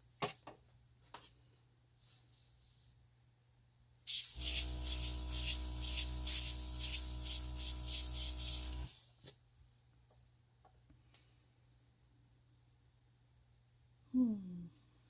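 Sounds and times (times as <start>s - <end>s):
airbrush hissing in pulses: 4.1s - 8.9s
compressor motor humming: 4.2s - 8.9s.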